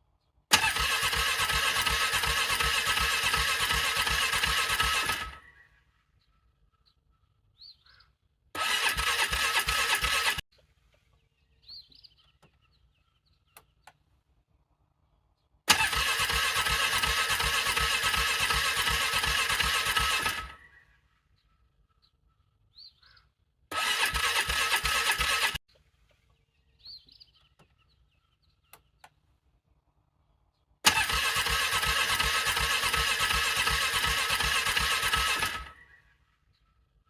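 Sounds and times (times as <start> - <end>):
electric starter cranking engine: 0.5 - 5.5, 8.6 - 10.4, 15.7 - 20.7, 23.7 - 25.6, 30.8 - 35.8.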